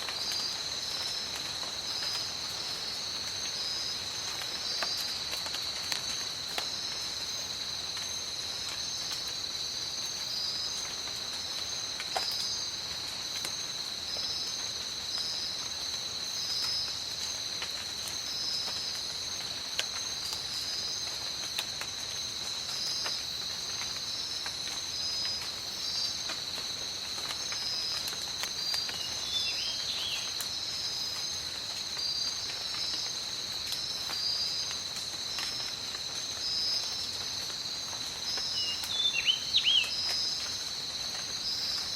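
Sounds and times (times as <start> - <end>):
steady rain: 0.0 - 41.9
pulsing insect call: 37.8 - 41.9.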